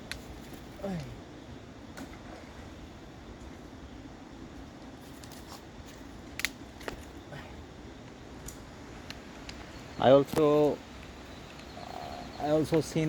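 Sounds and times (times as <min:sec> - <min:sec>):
faint sharp clicks: 0:08.1 - 0:09.6.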